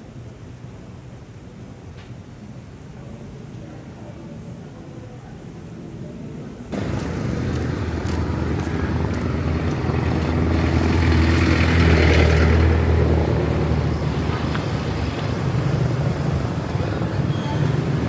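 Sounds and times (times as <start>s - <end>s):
vehicle engine humming: 6.7s - 18.0s.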